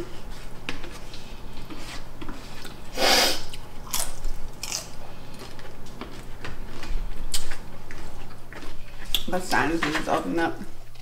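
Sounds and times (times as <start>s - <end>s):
food being chewed: 0.7s - 9.3s.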